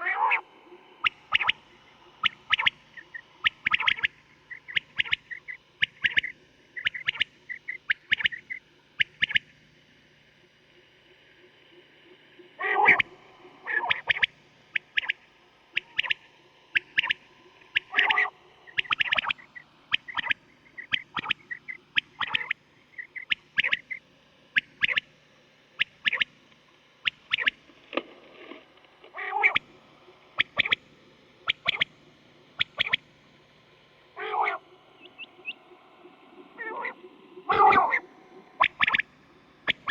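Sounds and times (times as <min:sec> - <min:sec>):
quail calling: 0:00.0 - 0:09.4, 0:12.6 - 0:24.0, 0:24.6 - 0:25.1, 0:25.8 - 0:26.3, 0:27.0 - 0:27.6, 0:29.2 - 0:29.6, 0:30.4 - 0:30.8, 0:31.4 - 0:31.9, 0:32.6 - 0:33.0, 0:34.2 - 0:35.6, 0:36.6 - 0:38.0, 0:38.6 - 0:39.9
faint steady hum: 0:00.0 - 0:39.9.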